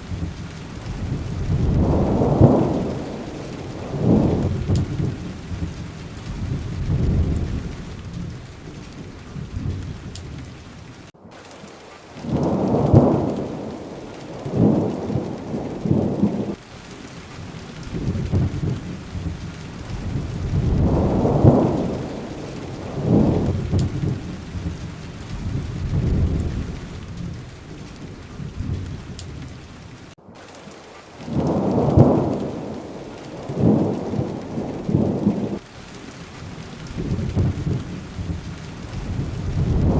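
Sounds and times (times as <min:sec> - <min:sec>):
thunder rolling: 0:00.0 - 0:11.1, 0:12.2 - 0:16.8, 0:17.4 - 0:30.2, 0:31.2 - 0:35.7, 0:36.5 - 0:39.9
steady rain: 0:00.0 - 0:39.9.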